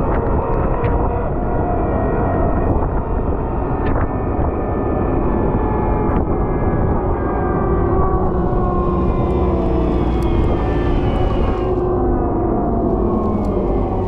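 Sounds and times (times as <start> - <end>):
diesel engine rumbling under load: 8.1 - 14.0.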